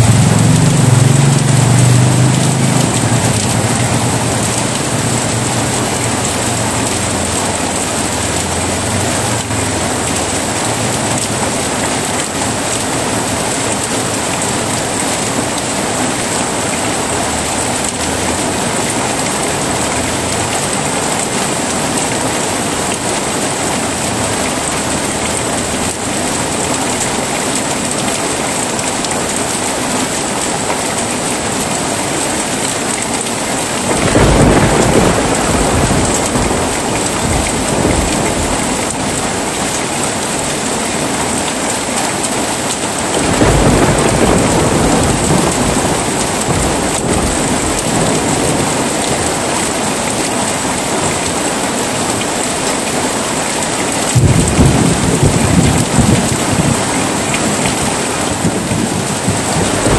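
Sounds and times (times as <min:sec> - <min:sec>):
thunder rolling: 0:00.0 - 0:13.5, 0:33.8 - 0:39.8, 0:43.1 - 0:49.5, 0:54.1 - 0:59.9
heavy rain: 0:00.0 - 0:59.9.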